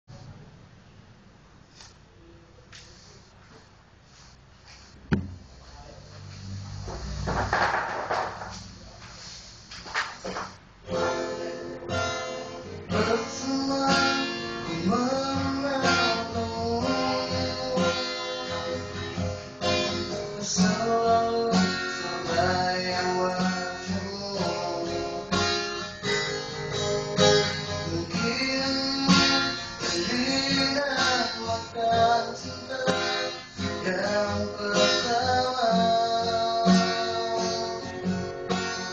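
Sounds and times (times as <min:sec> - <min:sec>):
strummed acoustic guitar: 0:06.9 - 0:08.7, 0:09.8 - 0:38.9
man singing: 0:12.6 - 0:25.4, 0:27.7 - 0:37.9.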